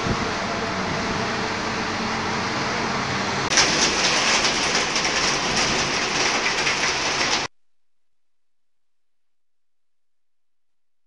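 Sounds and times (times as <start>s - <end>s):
low engine hum: 0.0s - 4.6s
traffic on a wet road: 0.0s - 7.5s.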